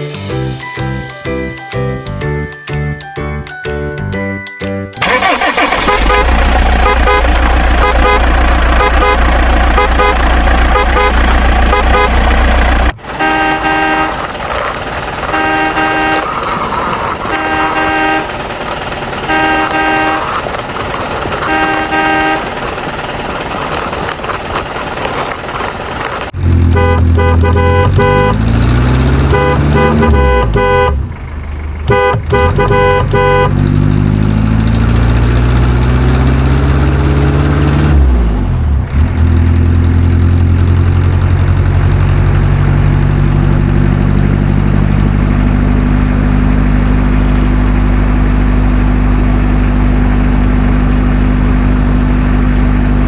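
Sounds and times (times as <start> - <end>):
vehicle horn honking: 5.0 - 14.3, 15.3 - 18.4, 19.2 - 20.5, 21.4 - 22.6, 26.6 - 28.5, 29.2 - 31.1, 31.9 - 33.6
engine running and revving: 5.0 - 53.0.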